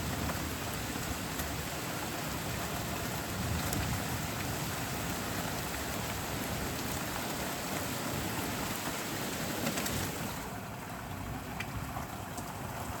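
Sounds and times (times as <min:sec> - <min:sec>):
steady rain hiss: 0:00.0 - 0:13.0
raindrop ticks: 0:00.1 - 0:01.6, 0:11.4 - 0:12.9.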